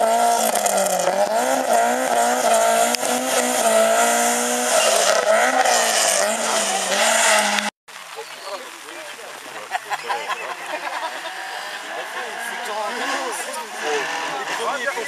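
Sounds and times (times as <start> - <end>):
rally car engine revving: 0.0 - 7.7, 10.8 - 15.0.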